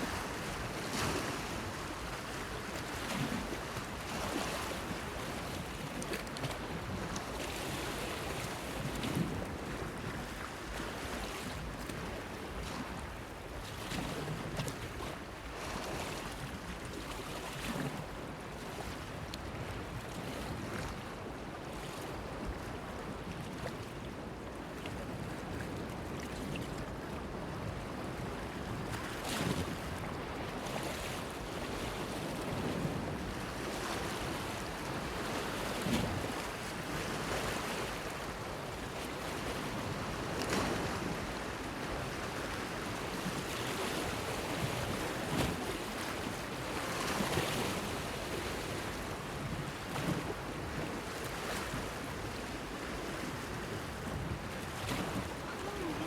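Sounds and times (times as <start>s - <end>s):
wave splashes: 28.9s - 56.0s
sea waves washing: 54.8s - 56.0s.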